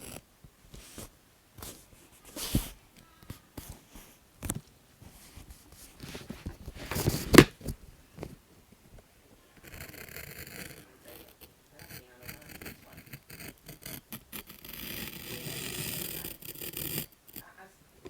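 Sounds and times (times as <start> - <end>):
paper rustling and scraping: 0.8 - 2.8, 5.0 - 7.8.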